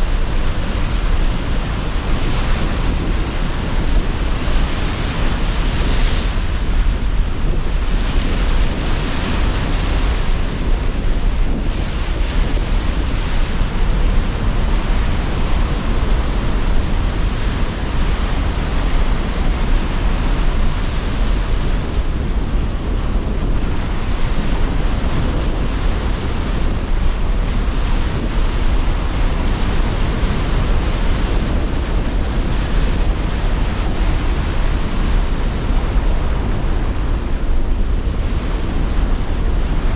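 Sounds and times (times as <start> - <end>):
waves breaking: 0.0 - 26.8
gusting wind: 0.0 - 39.9.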